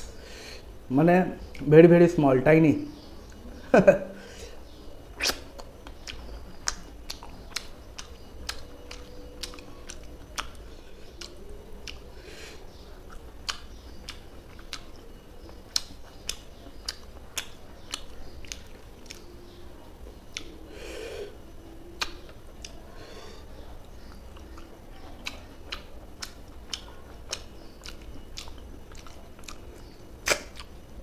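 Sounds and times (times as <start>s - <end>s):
chewing with wet mouth clicks: 4.7s - 20.7s, 21.8s - 23.0s, 23.8s - 31.0s
lip smacks: 5.1s - 12.1s, 13.1s - 15.1s, 15.7s - 19.3s, 20.3s - 20.8s, 22.0s - 23.0s, 23.8s - 30.8s.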